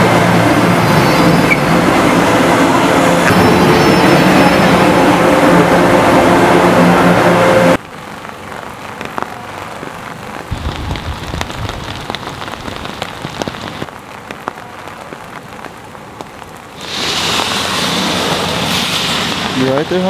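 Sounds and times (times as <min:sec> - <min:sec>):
rain on wet pavement: 0:07.7 - 0:20.0.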